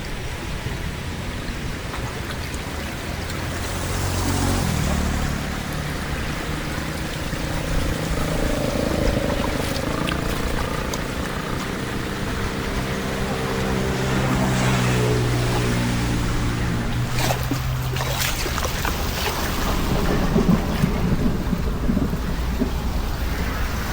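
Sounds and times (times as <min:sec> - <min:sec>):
floodwater rushing: 0:00.0 - 0:23.9
low hum: 0:02.9 - 0:23.9.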